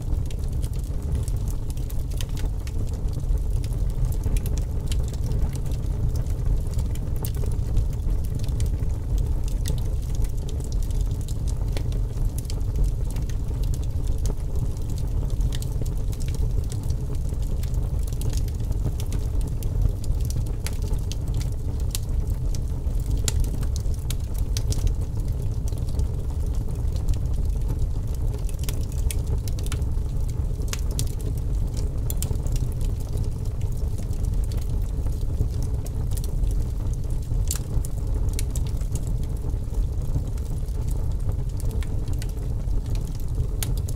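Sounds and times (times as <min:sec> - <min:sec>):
fire flames rumbling: 0:00.0 - 0:43.9
burning logs crackling: 0:00.1 - 0:43.9.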